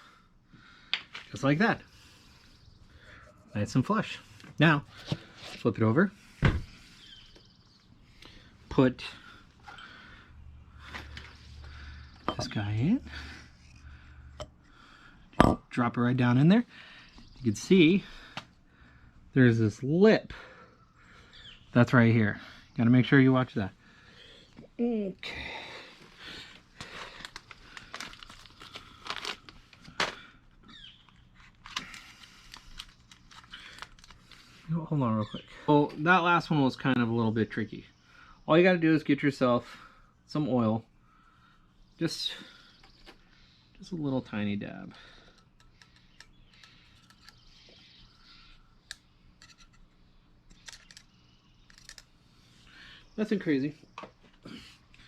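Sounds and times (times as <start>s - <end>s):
low steady hum: 0.0s - 55.0s
metallic clicks and scrapes: 49.4s - 49.9s, 50.5s - 52.1s.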